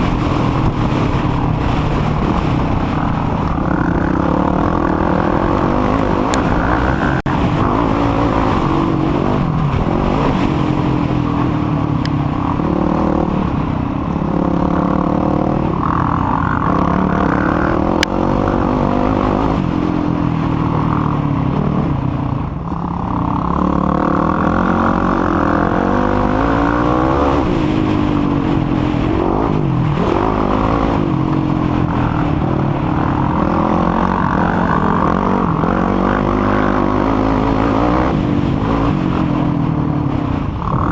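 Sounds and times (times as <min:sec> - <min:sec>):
quad engine revving: 0:00.0 - 0:40.9.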